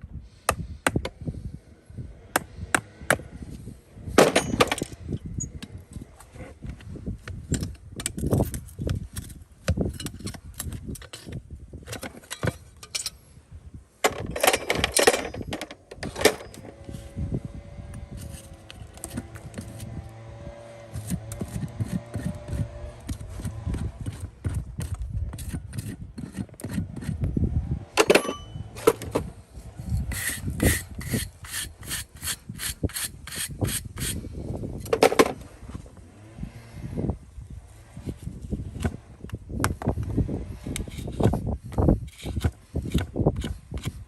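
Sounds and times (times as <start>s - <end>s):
rasp filing hoof: 17.9s - 27.3s, 29.8s - 34.3s, 39.7s - 44.0s.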